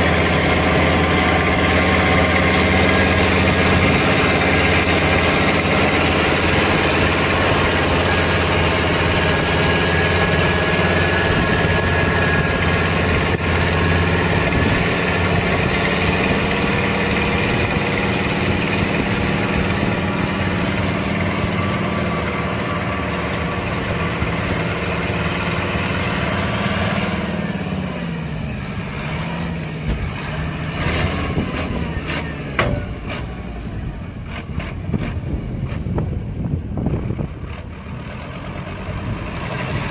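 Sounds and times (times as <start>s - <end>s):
large engine running: 0.0s - 39.9s.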